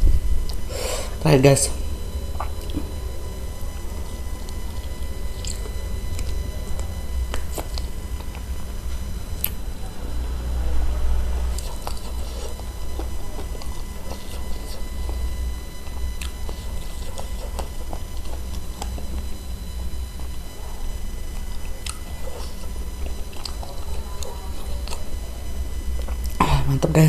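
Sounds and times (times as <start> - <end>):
steady low hum: 0.0 - 27.0
person chewing wetly: 0.4 - 0.7, 2.2 - 3.0, 3.6 - 8.6, 9.3 - 9.6, 11.4 - 25.2, 25.9 - 26.4.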